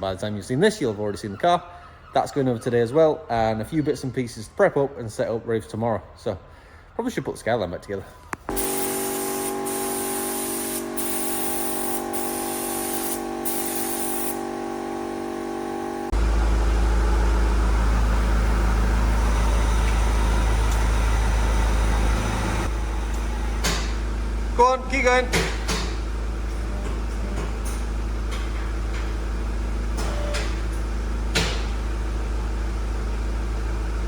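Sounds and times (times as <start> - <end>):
high hiss of air or spray: 8.5 - 14.4
machine hum: 8.5 - 25.4.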